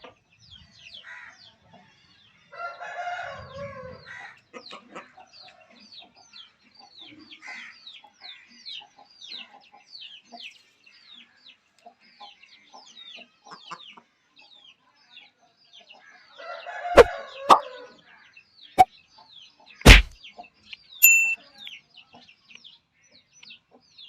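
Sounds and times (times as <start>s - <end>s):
loud sharp knocks: 19.9s - 20.1s
short steady high tone: 21.0s - 21.4s.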